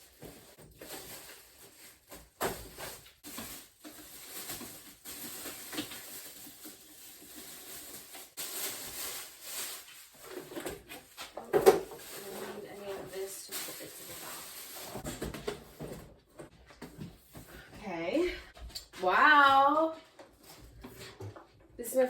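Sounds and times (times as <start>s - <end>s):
packaging rustling and scraping: 0.0s - 17.5s.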